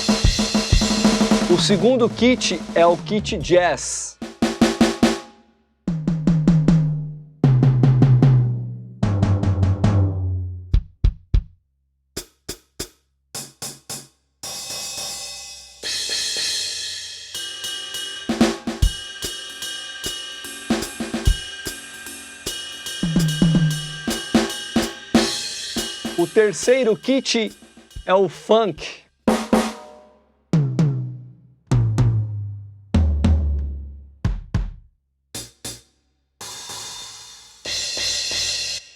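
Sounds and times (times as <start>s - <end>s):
electronic drum tom rolls: 0.0s - 5.0s, 5.9s - 11.2s, 23.0s - 27.2s, 30.6s - 34.8s
drum groove: 0.0s - 5.3s, 5.9s - 10.1s, 10.7s - 11.6s, 12.2s - 38.9s
cymbal crash: 14.5s - 28.0s.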